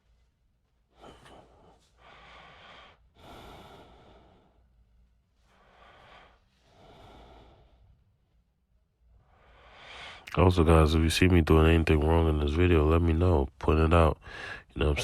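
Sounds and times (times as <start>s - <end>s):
man breathing heavily: 0.8s - 8.2s, 9.2s - 10.3s, 14.2s - 14.8s.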